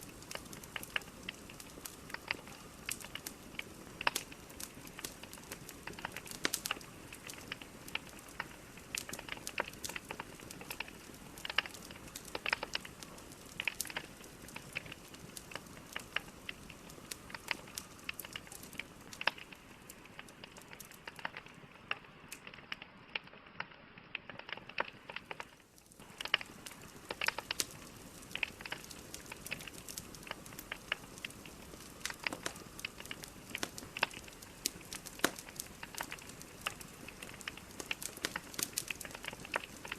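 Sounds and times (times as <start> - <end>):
fire hissing: 0.0 - 22.5, 24.4 - 39.9
logs crackling and popping: 0.0 - 39.9.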